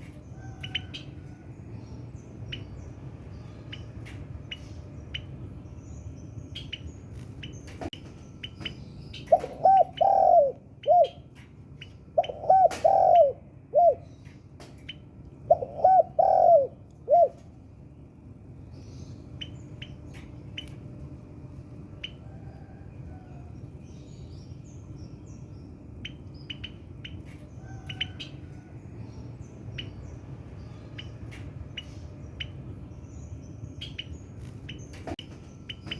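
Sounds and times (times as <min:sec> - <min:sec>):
small birds chirping: 0:00.0 - 0:35.9
dove cooing: 0:09.3 - 0:11.2, 0:12.2 - 0:14.1, 0:15.5 - 0:17.5.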